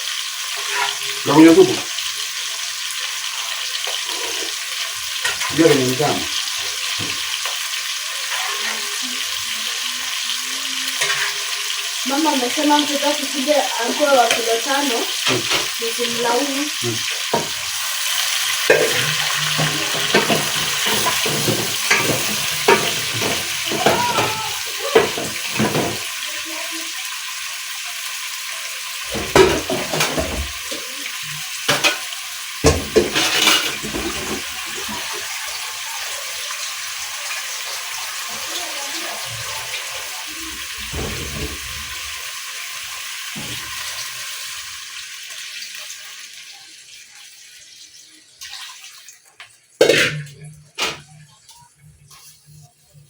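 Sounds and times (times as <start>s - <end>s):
food sizzling in a pot: 0.0s - 53.0s
utensils clattering on a pot: 0.6s - 1.8s, 3.8s - 7.6s, 10.9s - 13.1s, 13.8s - 16.4s, 18.6s - 26.2s, 29.1s - 30.9s, 31.7s - 35.6s, 39.3s - 42.1s, 49.8s - 51.2s.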